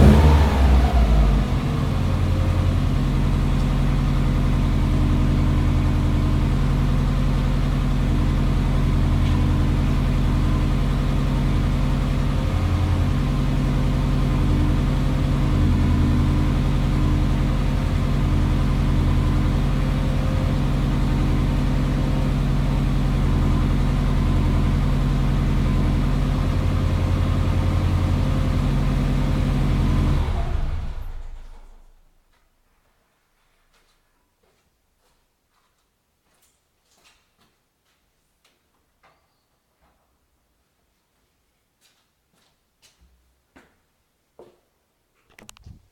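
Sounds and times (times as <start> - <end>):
car engine idling: 0.0 - 31.3.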